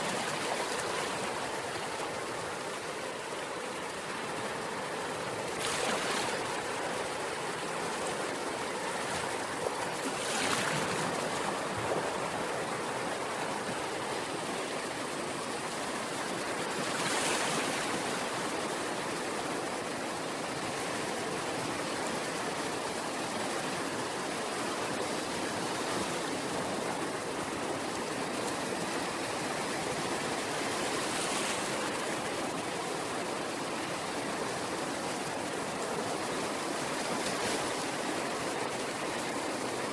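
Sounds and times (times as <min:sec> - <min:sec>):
waves breaking: 0:04.0 - 0:14.2, 0:16.1 - 0:18.4.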